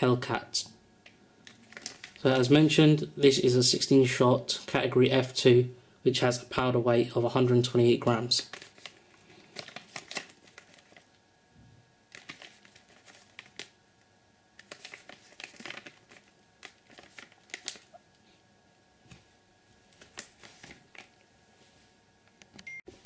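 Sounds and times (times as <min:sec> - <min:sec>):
packaging crinkling and rustling: 0:01.4 - 0:02.6, 0:08.1 - 0:11.2, 0:12.1 - 0:13.8, 0:14.6 - 0:18.2, 0:19.1 - 0:21.3.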